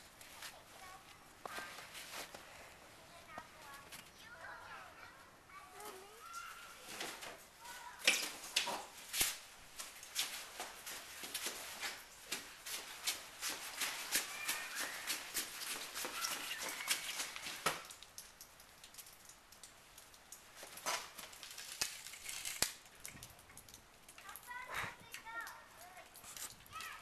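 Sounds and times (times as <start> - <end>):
footsteps crunching snow: 0.2 - 4.0, 9.1 - 17.7.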